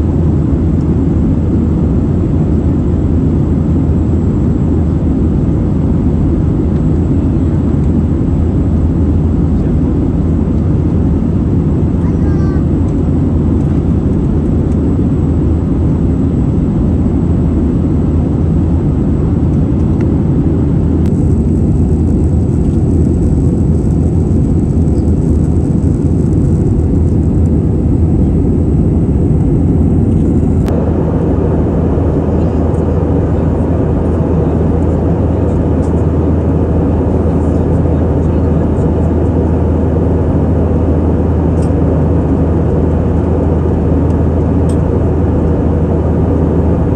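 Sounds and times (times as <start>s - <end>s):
airliner cabin engine rumble: 0.0s - 46.9s.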